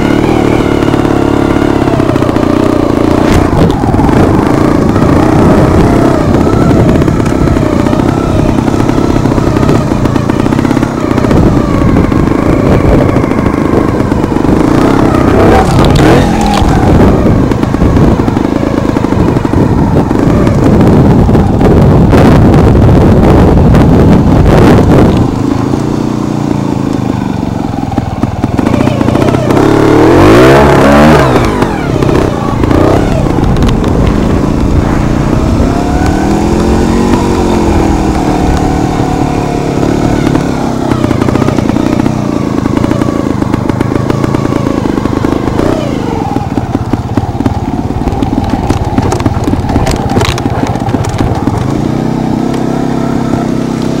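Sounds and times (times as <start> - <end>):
motorcycle engine revving: 0.0 - 54.0
motorcycle clattering over stones: 40.1 - 53.8.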